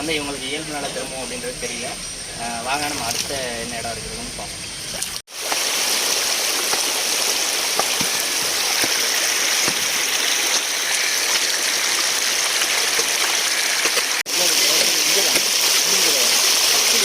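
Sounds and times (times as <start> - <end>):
floodwater rushing: 4.8 - 17.0.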